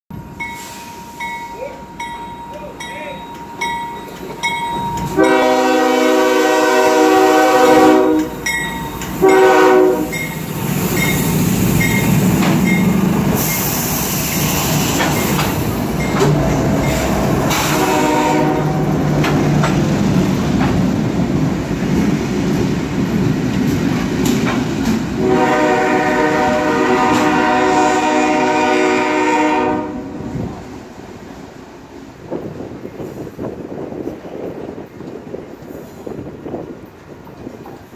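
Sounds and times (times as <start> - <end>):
freight train rolling by: 0.1 - 37.9
locomotive air horn blasts: 5.2 - 8.4, 9.2 - 10.2, 17.4 - 18.9, 25.2 - 30.4.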